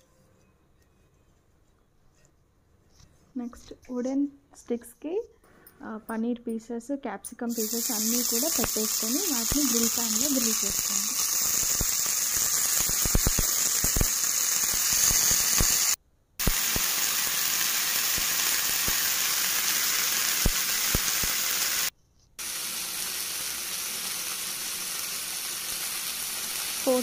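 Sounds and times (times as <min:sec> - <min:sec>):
food sizzling in hot oil: 0:07.5 - 0:27.0.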